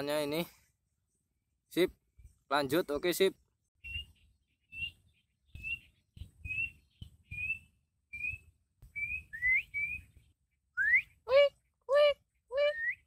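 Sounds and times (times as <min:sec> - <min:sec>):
bird whistled call: 0:03.8 - 0:11.3, 0:12.6 - 0:13.0.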